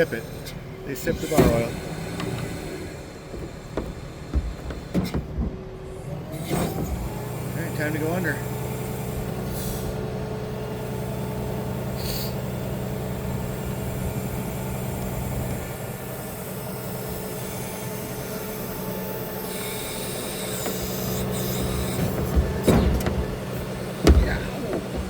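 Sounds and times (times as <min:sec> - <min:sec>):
hydraulic hiss: 0:00.0 - 0:05.4, 0:10.9 - 0:12.6, 0:15.7 - 0:25.0
truck engine running steadily: 0:00.0 - 0:25.0.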